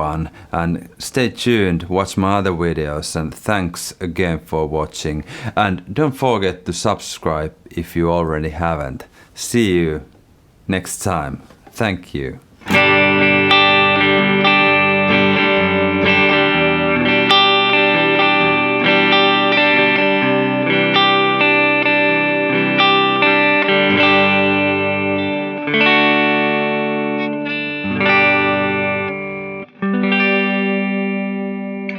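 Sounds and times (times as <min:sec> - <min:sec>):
electric guitar music: 0:12.6 - 0:31.9.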